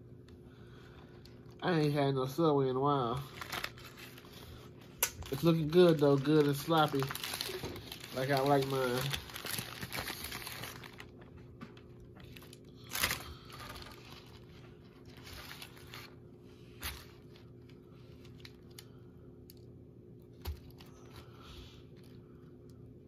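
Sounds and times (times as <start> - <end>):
steady low hum: 0.0 - 23.0
wrapper paper rustling and tearing: 3.1 - 11.2, 12.2 - 18.9.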